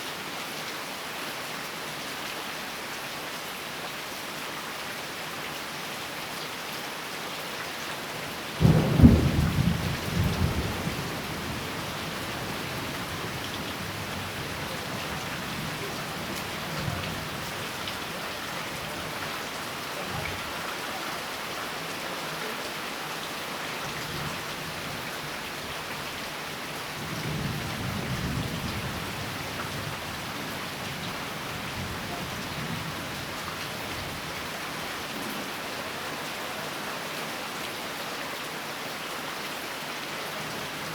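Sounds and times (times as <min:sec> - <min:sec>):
steady rain falling: 0:00.0 - 0:40.9
thunder clap: 0:08.6 - 0:14.7.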